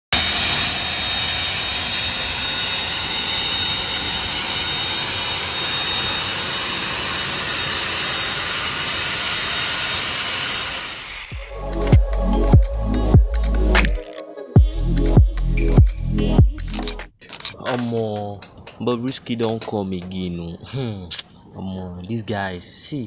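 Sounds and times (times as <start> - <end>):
jet engine rushing: 0.2 - 12.0.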